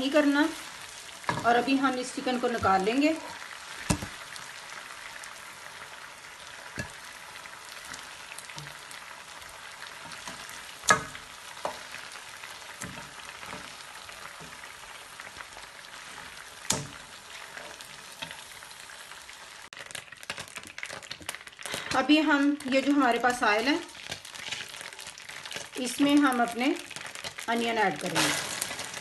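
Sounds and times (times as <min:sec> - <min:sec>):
chicken frying in oil: 0:00.0 - 0:29.0.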